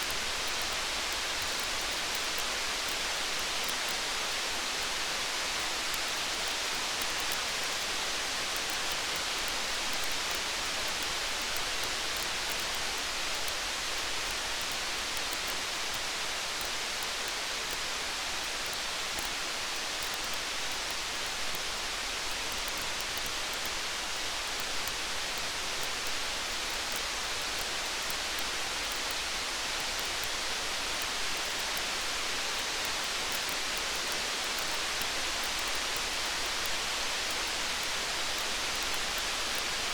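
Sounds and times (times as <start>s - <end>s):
faint tiny ticks: 0.0s - 39.9s.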